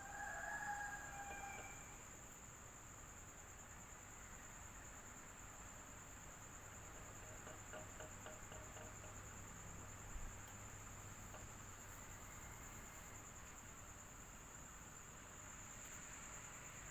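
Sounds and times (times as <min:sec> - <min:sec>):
faint ticks: 0:06.7 - 0:14.0
soft knock: 0:07.2 - 0:09.4.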